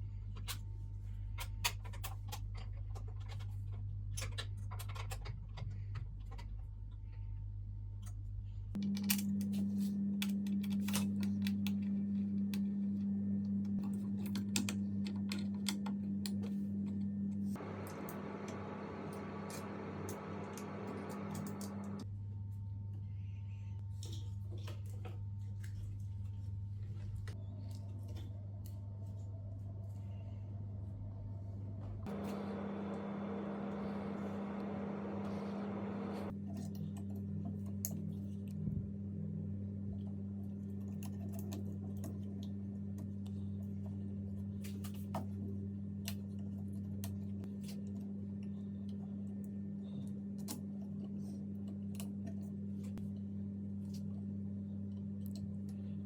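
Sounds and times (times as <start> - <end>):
low machine hum: 0.0 - 56.0
machine whirring: 17.6 - 22.0, 32.1 - 36.3.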